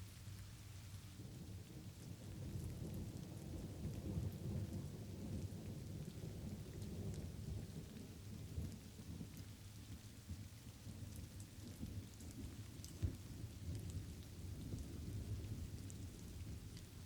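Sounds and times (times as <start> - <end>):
light rain falling: 0.0 - 17.0
low roll of thunder: 1.2 - 17.0.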